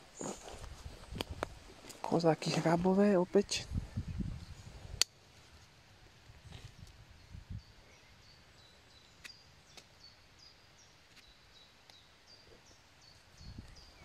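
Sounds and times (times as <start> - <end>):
small bird chirping: 6.4 - 14.0.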